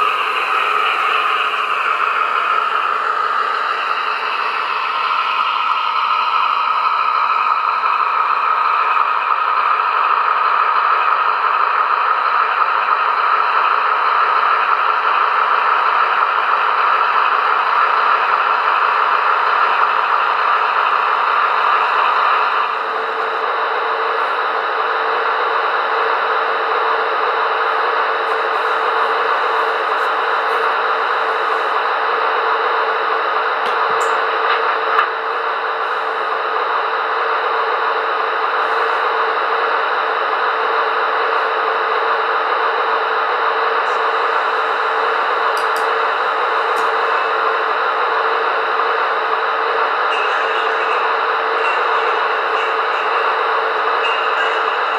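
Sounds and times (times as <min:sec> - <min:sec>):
model train diesel engine hum: 0:00.0 - 0:54.9.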